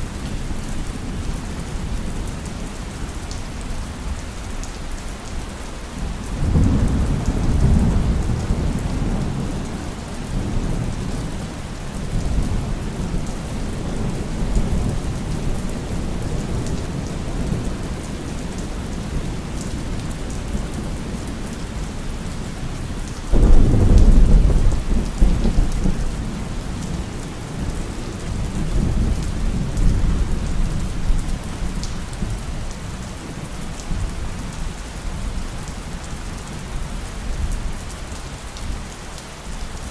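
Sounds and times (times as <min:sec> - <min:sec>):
heavy rain: 0:00.0 - 0:39.9
rolling thunder: 0:06.4 - 0:18.0, 0:23.3 - 0:31.5.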